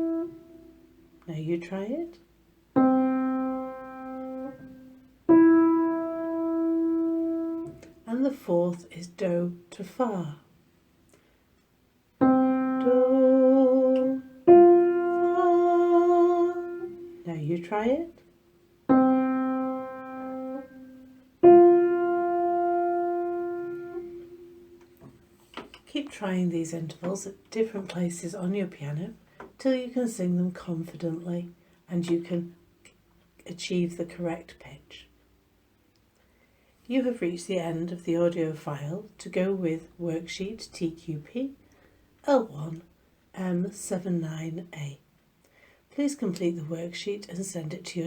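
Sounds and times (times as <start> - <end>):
piano notes ringing out: 0.0 - 1.2, 2.7 - 8.0, 12.2 - 25.0.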